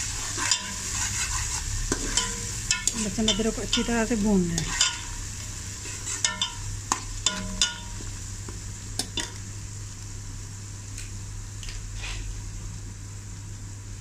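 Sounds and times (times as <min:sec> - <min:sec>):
low steady hum: 0:00.0 - 0:14.0
onions sizzling in hot fat: 0:00.0 - 0:14.0
steel spoon scraping a pot: 0:00.1 - 0:03.9, 0:04.6 - 0:05.2, 0:05.8 - 0:06.6.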